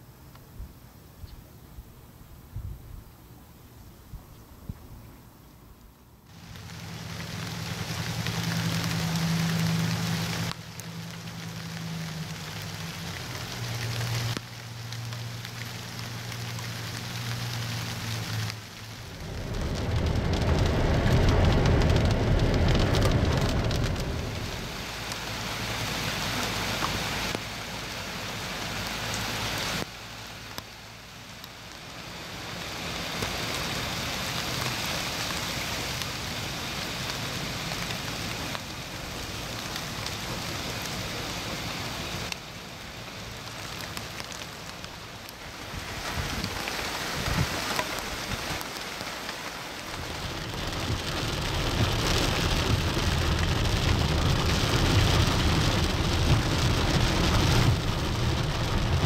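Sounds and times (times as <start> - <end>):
rain falling on plants: 6.2 - 59.0
low rumble: 17.0 - 25.9, 49.8 - 59.0.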